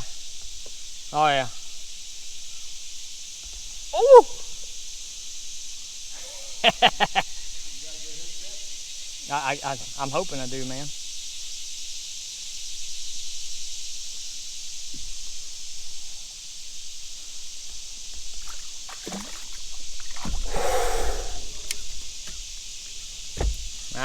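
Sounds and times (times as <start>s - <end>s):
high-pitched insect chorus: 0.0s - 24.0s
short rough noise: 20.2s - 22.1s.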